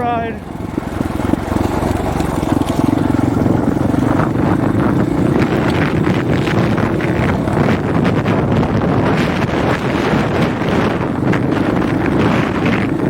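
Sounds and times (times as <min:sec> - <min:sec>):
dirt bike engine running: 0:00.0 - 0:13.0
wind buffeting microphone: 0:00.0 - 0:13.0.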